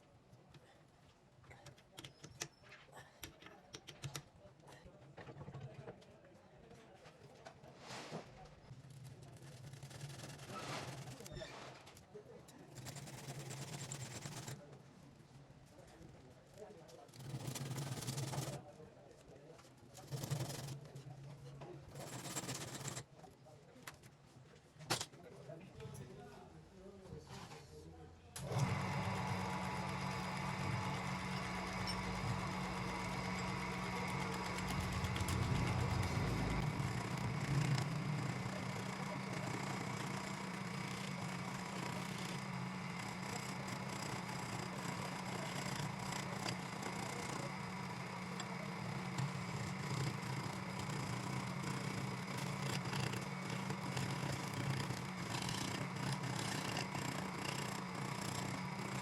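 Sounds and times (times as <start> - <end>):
power tool motor humming: 28.4 - 59.0.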